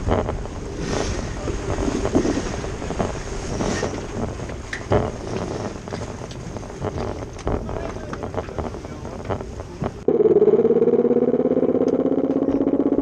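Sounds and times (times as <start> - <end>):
wind buffeting microphone: 0.0 - 10.1
water rushing along hull: 0.0 - 13.0.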